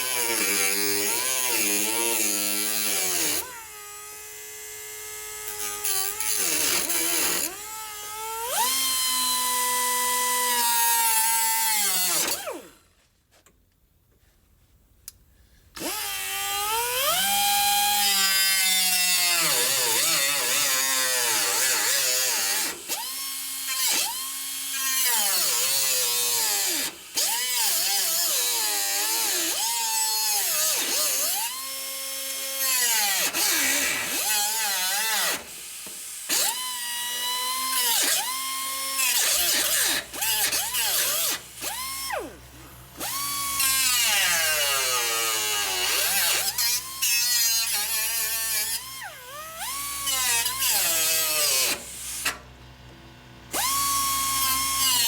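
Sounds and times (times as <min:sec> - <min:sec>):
power tool motor whine: 0:15.8 - 0:55.0.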